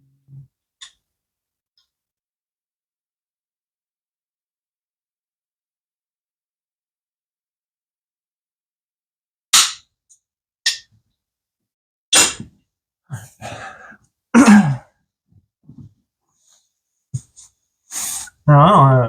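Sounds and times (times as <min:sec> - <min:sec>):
person grunting with effort: 0:13.1 - 0:14.9.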